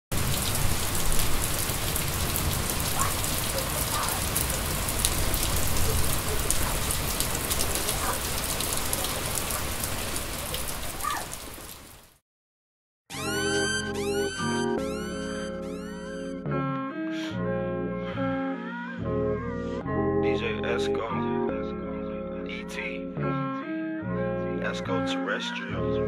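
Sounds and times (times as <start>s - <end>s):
steady rain falling: 0.1s - 12.2s.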